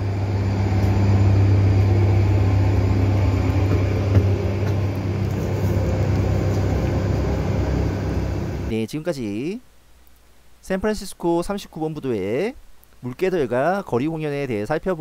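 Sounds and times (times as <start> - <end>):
idling train low hum: 0.0 - 8.8.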